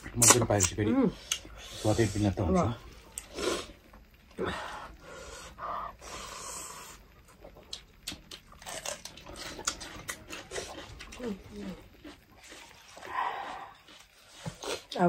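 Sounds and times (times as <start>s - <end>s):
breathing: 4.4s - 7.0s, 13.0s - 13.7s
chewing: 6.7s - 15.0s
crunching bell pepper: 7.4s - 15.0s.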